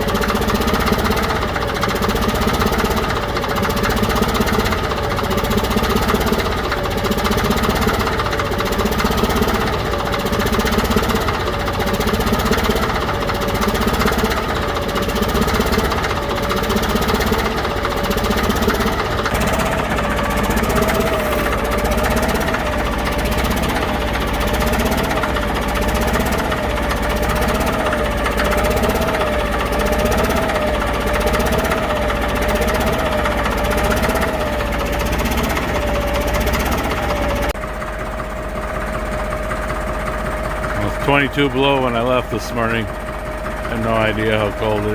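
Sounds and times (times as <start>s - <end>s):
bulldozer diesel engine whining: 0.0s - 44.9s.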